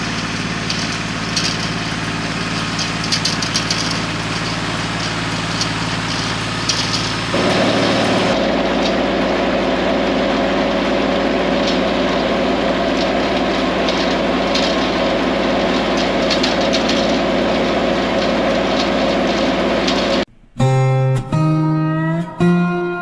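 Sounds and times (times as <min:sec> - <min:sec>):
crackling ticks from hay implement: 0:00.0 - 0:08.4
tractor diesel engine running: 0:00.0 - 0:20.3.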